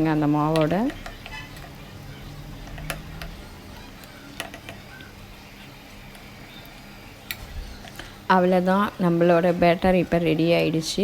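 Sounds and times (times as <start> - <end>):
spoon stirring batter: 0.0 - 11.0
spoon clinking against bowl: 0.4 - 1.9.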